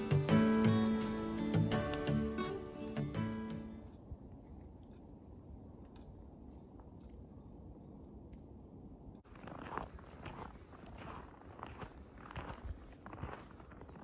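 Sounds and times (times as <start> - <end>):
faint high bird chirps: 3.8 - 9.2
footsteps crunching in snow: 9.2 - 14.0.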